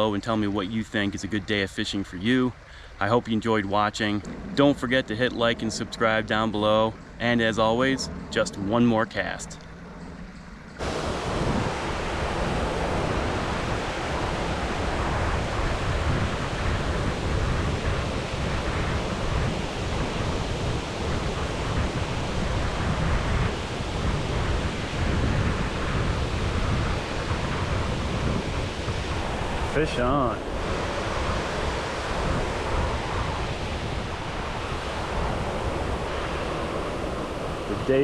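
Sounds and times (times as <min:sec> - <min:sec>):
wind on microphone: 0:00.0 - 0:38.0
river water rushing: 0:10.8 - 0:25.8, 0:26.6 - 0:37.8.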